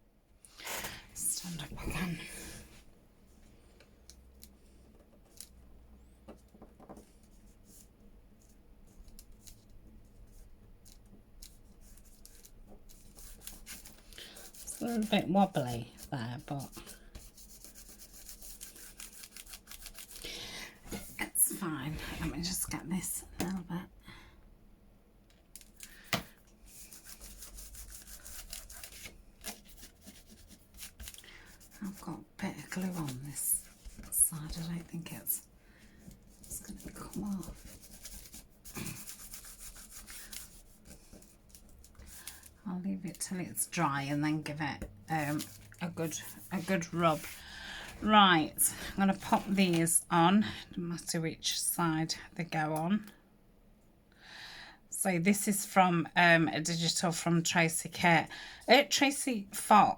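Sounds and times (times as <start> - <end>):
fingers rubbing paper: 11.4 - 20.2, 26.7 - 35.3, 36.4 - 42.3.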